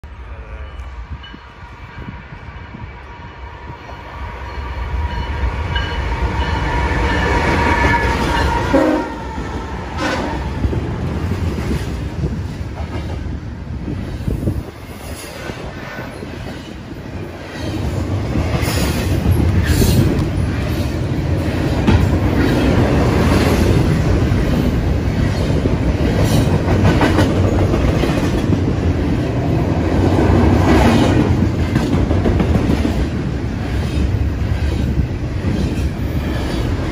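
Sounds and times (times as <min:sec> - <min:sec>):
train rumbling past: 0:00.0 - 0:36.9
locomotive horn chord: 0:08.6 - 0:09.4.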